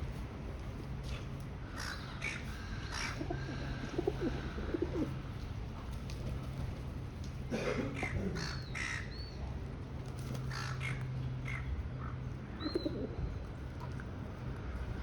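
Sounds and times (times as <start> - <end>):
harsh cawing bird calls: 1.7 - 5.0, 7.9 - 9.4, 10.5 - 12.9.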